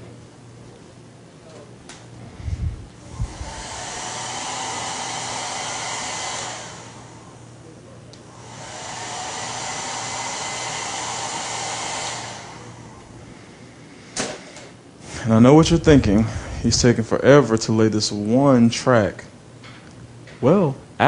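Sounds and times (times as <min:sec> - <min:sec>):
blow dryer blowing: 0:02.2 - 0:17.4.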